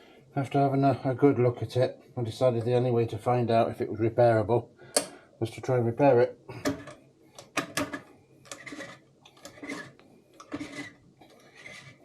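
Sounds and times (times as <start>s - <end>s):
metal cutter scraping metal: 8.5s - 12.0s.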